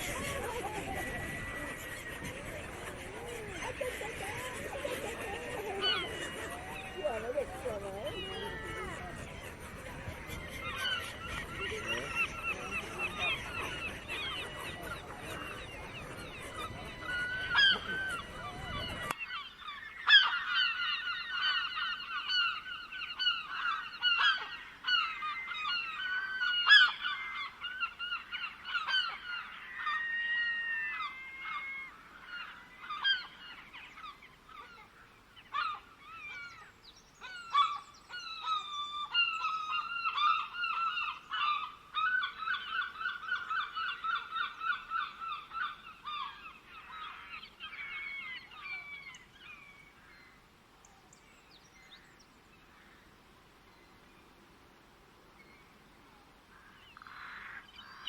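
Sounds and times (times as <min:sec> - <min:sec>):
many birds calling: 0:00.0 - 0:50.4, 0:56.5 - 0:58.0.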